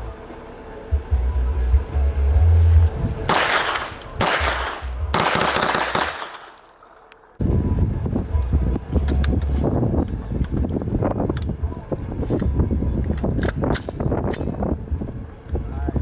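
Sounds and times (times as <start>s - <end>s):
wind buffeting microphone: 0.9s - 5.3s, 7.4s - 16.0s
gunshots with ringing echo: 3.3s - 7.4s.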